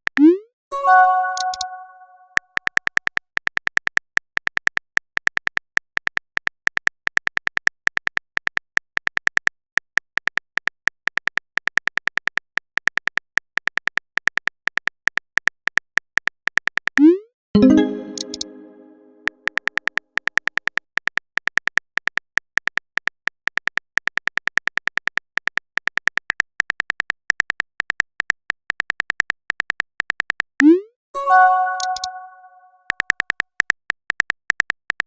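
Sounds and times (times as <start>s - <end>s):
phone keyboard typing clicks: 1.0s - 2.0s, 17.6s - 18.7s, 31.5s - 33.4s.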